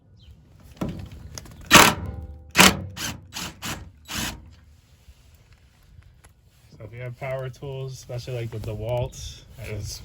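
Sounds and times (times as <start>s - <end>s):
power driver bursts: 1.7s - 4.6s.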